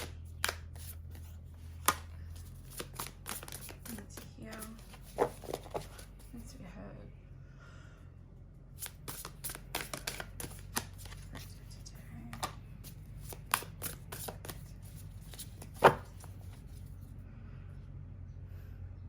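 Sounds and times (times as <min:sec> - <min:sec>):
card slap: 0:00.0 - 0:01.0, 0:01.8 - 0:06.1, 0:08.8 - 0:11.6, 0:13.2 - 0:16.4
cards being shuffled: 0:00.0 - 0:06.5, 0:08.8 - 0:17.1.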